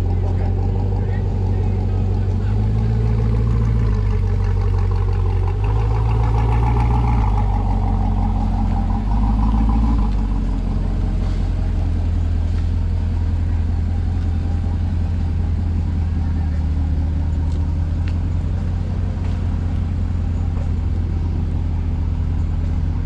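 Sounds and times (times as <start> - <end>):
car engine rumbling: 0.0 - 23.0.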